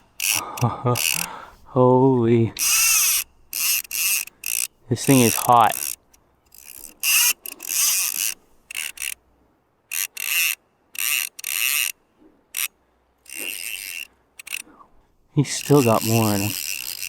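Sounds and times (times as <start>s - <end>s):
fly reel drag buzzing: 0.0s - 1.4s, 2.6s - 9.2s, 9.9s - 14.7s, 15.4s - 17.0s.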